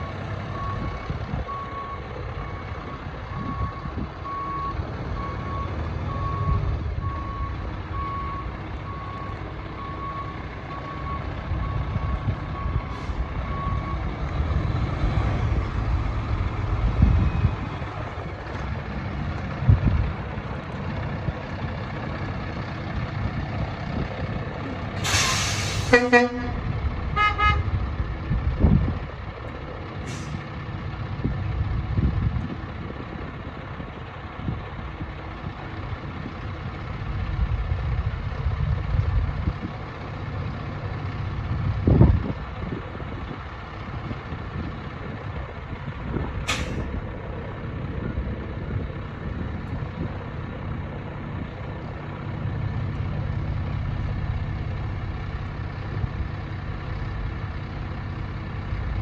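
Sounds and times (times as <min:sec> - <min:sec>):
truck diesel engine running: 0:00.0 - 0:59.0
short sharp air hisses: 0:25.0 - 0:26.0, 0:46.5 - 0:46.9.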